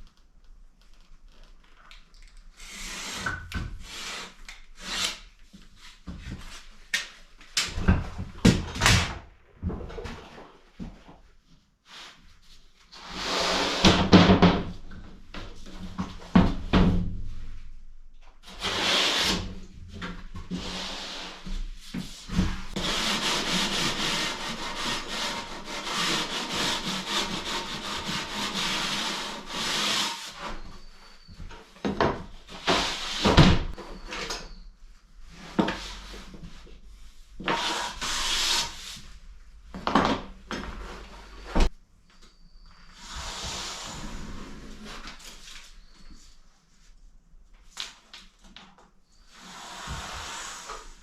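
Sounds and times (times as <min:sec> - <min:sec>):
hand tool rasping on wood: 0:22.8 - 0:30.3.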